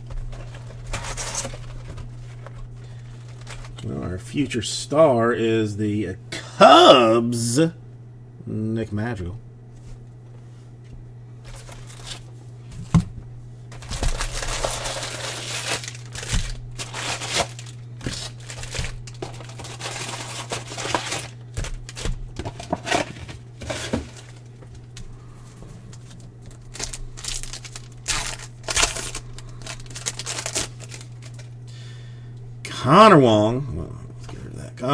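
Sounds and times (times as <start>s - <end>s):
foil wrappers crinkling and tearing: 0.0s - 3.9s, 11.4s - 13.0s, 13.7s - 32.0s
low electrical hum: 0.0s - 34.9s.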